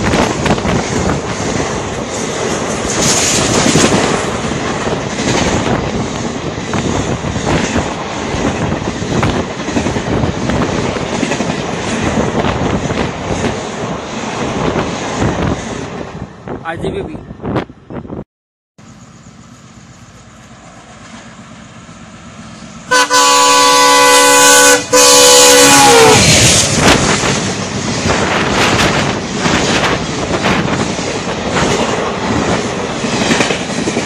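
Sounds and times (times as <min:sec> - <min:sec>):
diesel locomotive rumble: 0:18.8 - 0:34.0
multi-tone train horn: 0:22.9 - 0:26.6.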